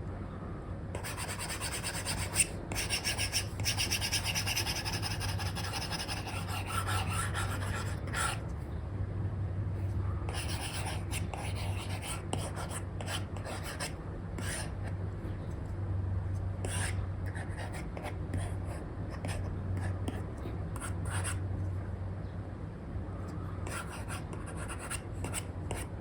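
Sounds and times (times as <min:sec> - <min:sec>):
steady low hum: 0:00.0 - 0:26.0
stylus scratching on screen: 0:01.0 - 0:08.4, 0:10.3 - 0:14.8.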